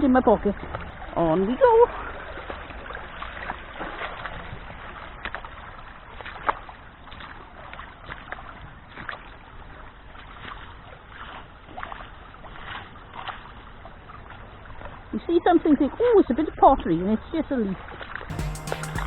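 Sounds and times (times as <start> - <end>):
stream running water: 0.0 - 18.3
feet splashing in water: 0.5 - 15.1.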